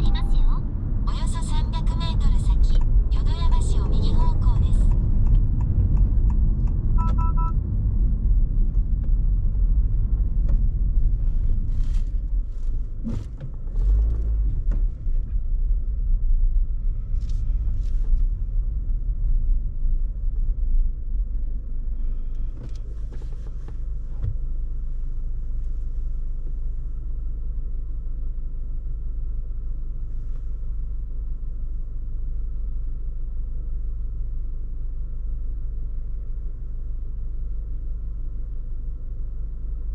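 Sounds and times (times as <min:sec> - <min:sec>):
car cabin road rumble: 0:00.0 - 0:39.9
electronic two-tone beep: 0:07.0 - 0:07.6.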